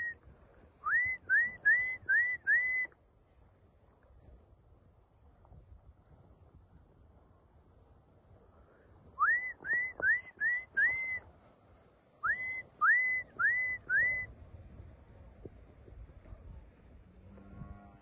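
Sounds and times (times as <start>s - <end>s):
person whistling short notes: 9.2s - 11.2s.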